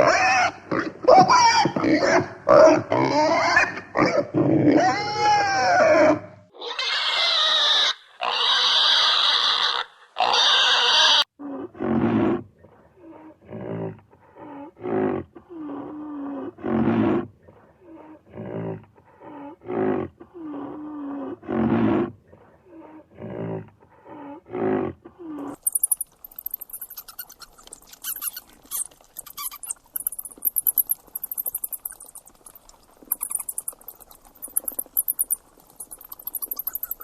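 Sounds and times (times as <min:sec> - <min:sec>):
animal grunting calls: 0:22.7 - 0:37.0
animal gliding squeals: 0:25.4 - 0:37.0
animal rasping calls: 0:25.4 - 0:37.0.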